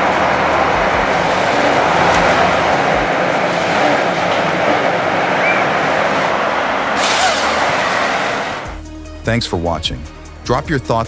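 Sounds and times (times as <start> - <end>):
harvester diesel engine and hydraulics: 0.0 - 8.8
low thuds: 0.6 - 3.4.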